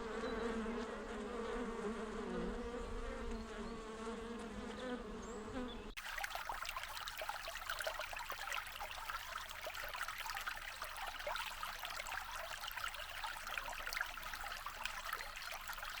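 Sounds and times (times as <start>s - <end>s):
bee buzzing: 0.0s - 5.9s
running water trickling: 6.0s - 16.0s.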